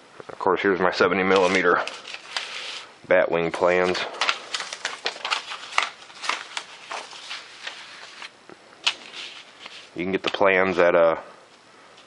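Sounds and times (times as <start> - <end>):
paper rustling and crinkling: 1.3 - 10.4.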